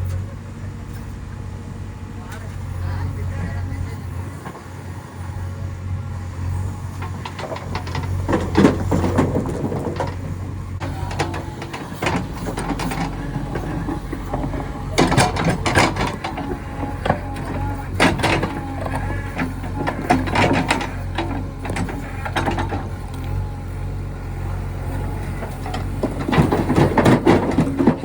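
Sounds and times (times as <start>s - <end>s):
diesel engine running: 0.0s - 28.0s
rocks clattering against steel bucket: 7.0s - 23.3s, 25.2s - 28.0s.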